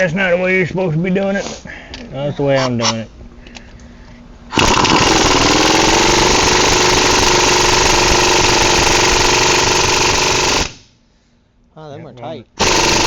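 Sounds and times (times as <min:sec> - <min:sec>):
impact wrench hammering: 0:04.5 - 0:10.8, 0:12.6 - 0:13.0.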